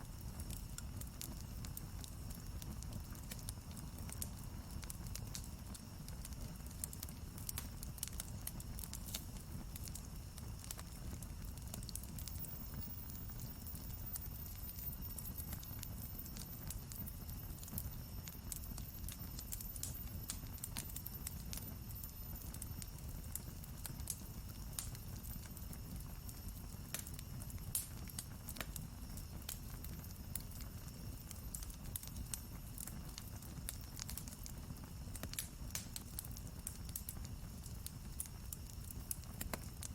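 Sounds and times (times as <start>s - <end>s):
campfire crackling: 0.0s - 39.9s
burning wood popping and snapping: 26.3s - 39.9s.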